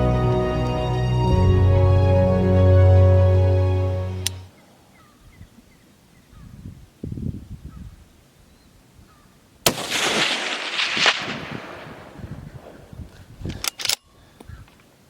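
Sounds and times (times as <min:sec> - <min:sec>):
low handling rumble: 0:00.0 - 0:04.5
rifle shot with echo: 0:09.6 - 0:12.8.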